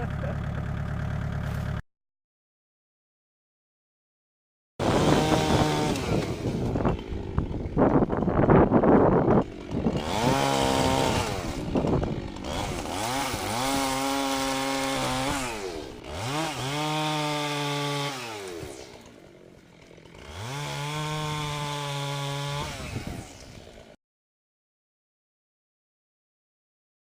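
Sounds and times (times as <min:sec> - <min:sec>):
chainsaw engine revving: 0:04.8 - 0:24.0.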